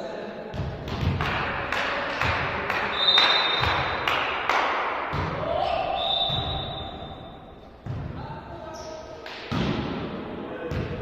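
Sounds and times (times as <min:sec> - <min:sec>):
volleyball bouncing on floor: 0:00.5 - 0:05.6, 0:06.2 - 0:06.8, 0:07.8 - 0:08.2, 0:10.7 - 0:11.0.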